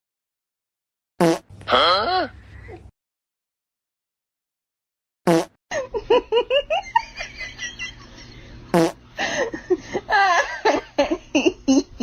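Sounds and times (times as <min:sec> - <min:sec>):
fart-like blasts: 0:01.2 - 0:01.5, 0:05.3 - 0:05.6, 0:08.7 - 0:09.0.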